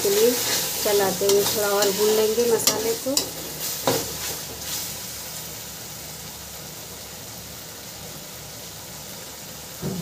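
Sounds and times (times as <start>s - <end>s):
spatula scraping a pan: 0.0s - 5.0s
food sizzling in oil: 0.0s - 10.0s.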